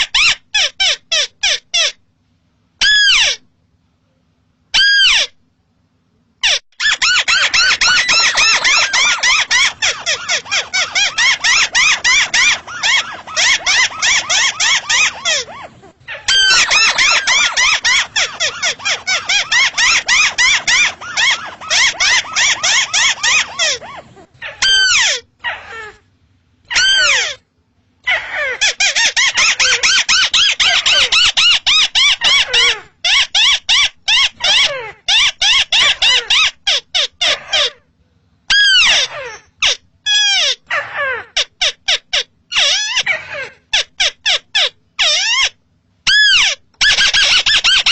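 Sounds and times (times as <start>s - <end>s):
crake calling with squealing notes: 6.4s - 26.0s, 26.6s - 27.4s, 38.5s - 47.9s.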